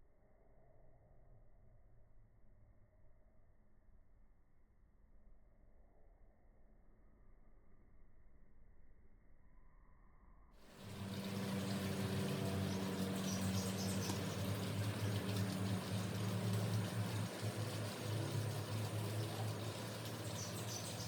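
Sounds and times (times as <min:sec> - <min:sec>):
flowing water hissing: 0:10.7 - 0:21.0
steady low hum: 0:10.7 - 0:21.0
faint bird chirps: 0:10.8 - 0:21.0.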